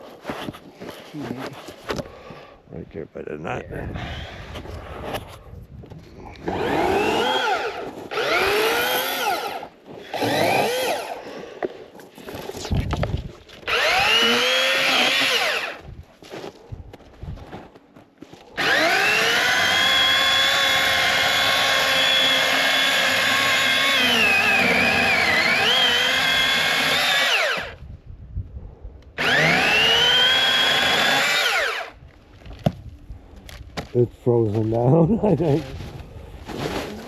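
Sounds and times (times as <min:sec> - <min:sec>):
electric chainsaw motor whine: 0:06.4 - 0:11.2, 0:13.6 - 0:15.8, 0:18.6 - 0:27.8, 0:29.2 - 0:32.0.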